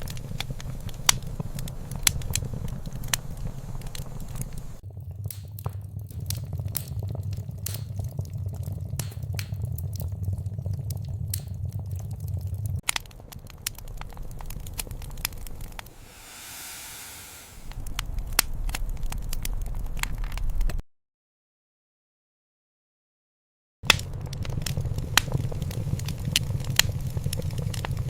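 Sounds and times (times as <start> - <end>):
soft hiss: 0.0 - 4.8, 15.9 - 17.8
wood fire crackling and popping: 0.0 - 15.4, 23.9 - 28.0
low rumble: 15.9 - 17.8.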